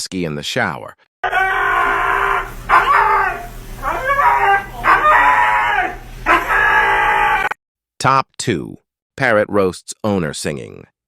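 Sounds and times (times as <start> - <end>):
husky howling and whining: 1.2 - 7.5.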